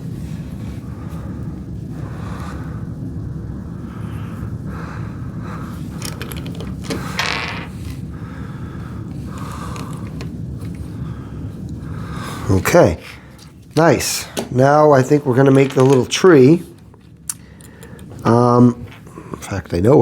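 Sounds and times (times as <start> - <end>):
steady low hum: 0.0 - 20.0
plastic pieces clicking and rattling: 6.0 - 8.0, 9.7 - 10.8, 15.4 - 16.2.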